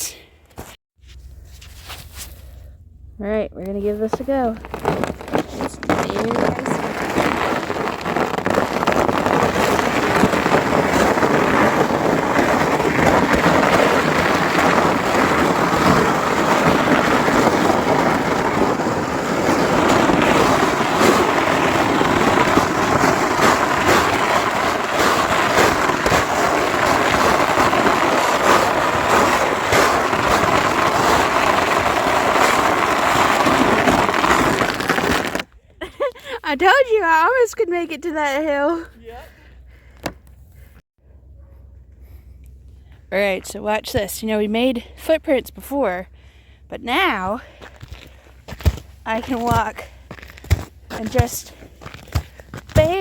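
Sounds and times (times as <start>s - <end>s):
sled scraping over icy snow: 3.6s - 39.0s, 46.8s - 53.0s.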